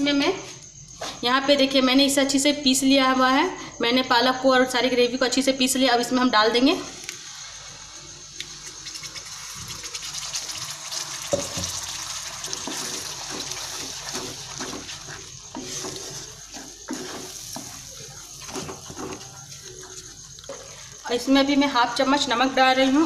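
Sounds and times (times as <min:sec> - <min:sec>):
paste sizzling in hot oil: 0:07.0 - 0:21.2
wooden spatula scraping: 0:12.6 - 0:20.8.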